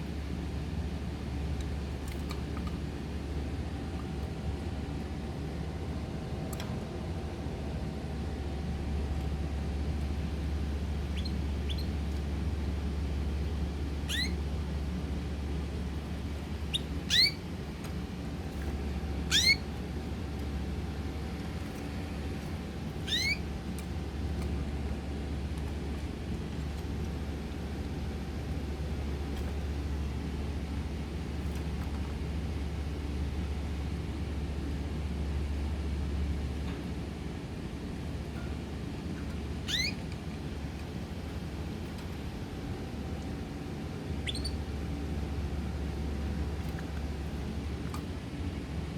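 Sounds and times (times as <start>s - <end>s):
steady low hum: 0.0s - 48.9s
pet bird chirping: 11.0s - 12.0s, 14.0s - 14.4s, 16.7s - 17.5s, 19.3s - 19.7s, 23.0s - 23.5s, 39.6s - 40.0s, 44.2s - 44.7s.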